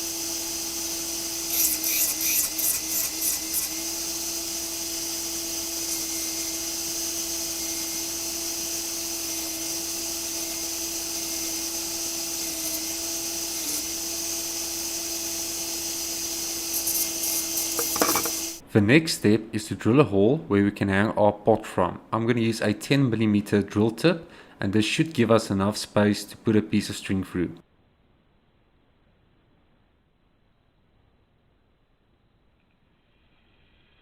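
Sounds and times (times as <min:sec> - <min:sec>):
electric sander running: 0:00.0 - 0:18.6.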